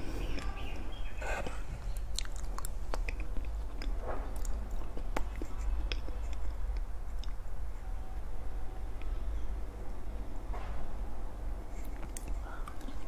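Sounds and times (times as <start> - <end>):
lip and tongue clicks: 1.3 - 7.4
wet chewing of soft cake: 1.3 - 7.5.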